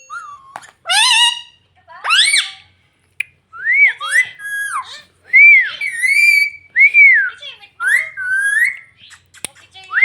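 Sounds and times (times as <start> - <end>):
parrot whistled calls: 0.0 - 2.6, 3.6 - 9.0.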